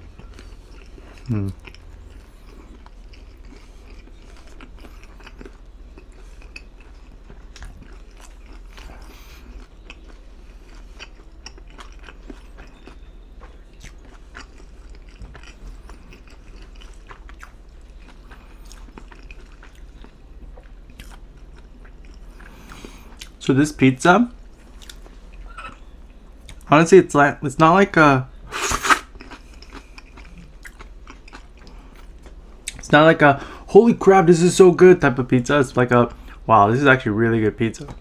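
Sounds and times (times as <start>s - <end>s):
chewing pizza: 0.0s - 26.8s, 28.2s - 33.4s
faint low hum: 0.0s - 38.0s
wet mouth clicks: 28.5s - 29.3s.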